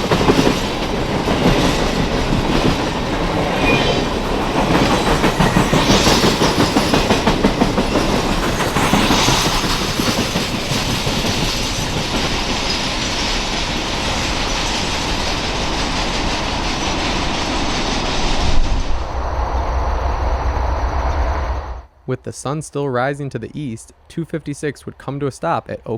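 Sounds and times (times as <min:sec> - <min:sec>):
train wheels clicking over rail joints: 0:00.0 - 0:03.5, 0:04.2 - 0:18.4.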